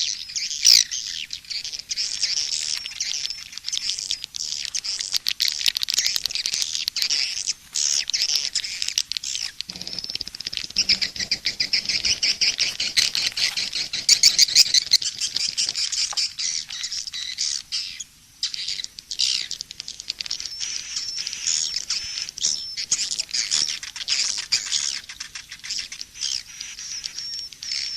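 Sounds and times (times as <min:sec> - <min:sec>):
swiftlets twittering: 0:09.7 - 0:16.1.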